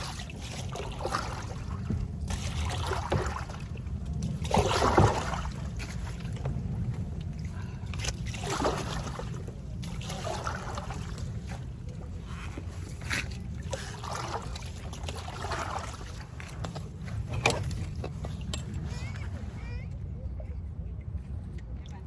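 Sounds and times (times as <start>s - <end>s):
paddle swishing water: 0.0s - 19.8s
steady low rumble: 0.0s - 22.0s.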